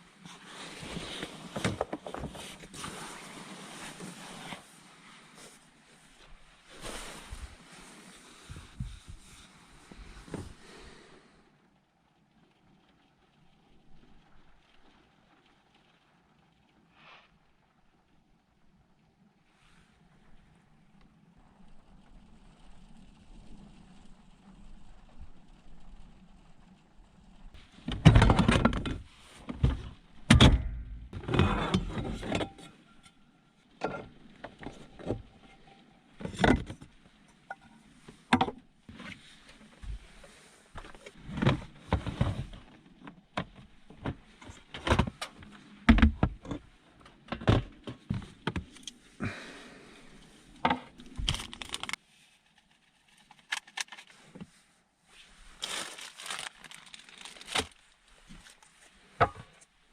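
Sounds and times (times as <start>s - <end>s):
small hard objects clinking: 55.6s - 57.8s.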